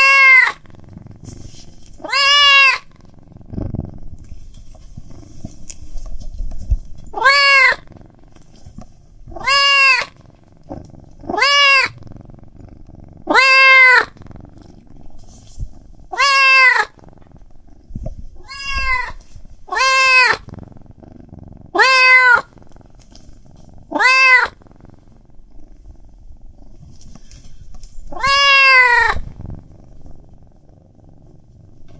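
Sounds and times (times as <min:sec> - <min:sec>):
cat meowing: 0:00.0 - 0:00.7, 0:02.0 - 0:03.0, 0:07.2 - 0:07.9, 0:09.3 - 0:10.2, 0:11.3 - 0:12.0, 0:13.3 - 0:14.2, 0:16.1 - 0:17.0, 0:18.4 - 0:20.5, 0:21.7 - 0:22.5, 0:23.9 - 0:24.6, 0:28.1 - 0:29.3.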